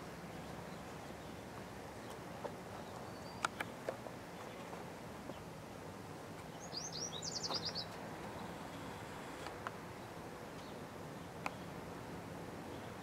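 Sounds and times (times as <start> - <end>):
faint outdoor background noise: 0.0 - 13.0
songbird down-slurred chirps: 6.5 - 8.0.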